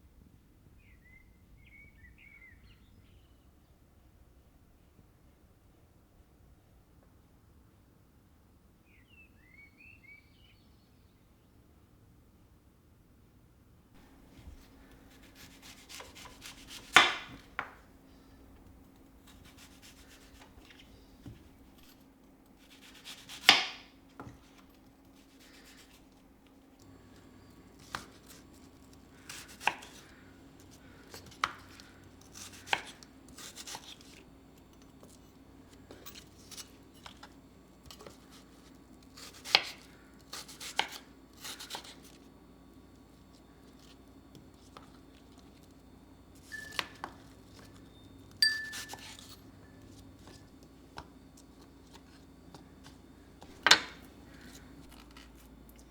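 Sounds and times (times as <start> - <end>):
faint steady hum: 0.0 - 55.9
knife chopping on cutting board: 14.2 - 17.8, 19.2 - 21.9, 22.7 - 24.4, 29.2 - 30.1, 31.1 - 34.1, 39.2 - 41.9, 48.4 - 49.4.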